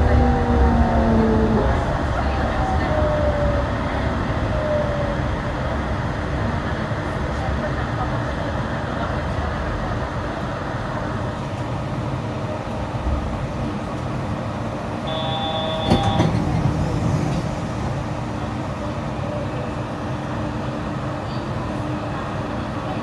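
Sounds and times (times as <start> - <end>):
train running rumble and hiss: 0.0 - 23.0
short pitched tone: 15.0 - 16.3.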